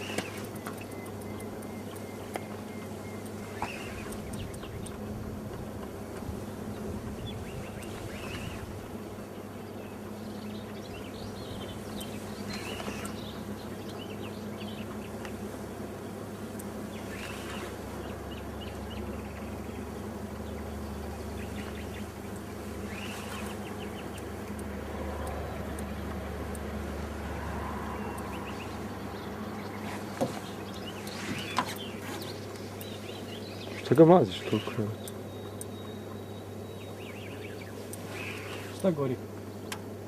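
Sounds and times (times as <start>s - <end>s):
bird chirps: 0.0s - 40.0s
low hum: 0.0s - 40.0s.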